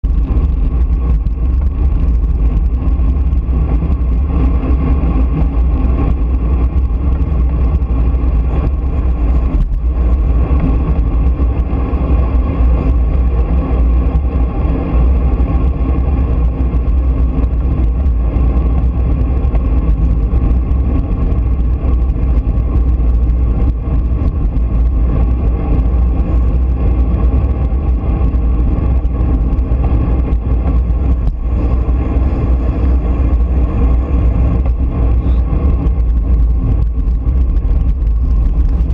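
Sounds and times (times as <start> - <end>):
continuous drone: 0.0 - 38.9
road noise rumble: 0.0 - 38.9.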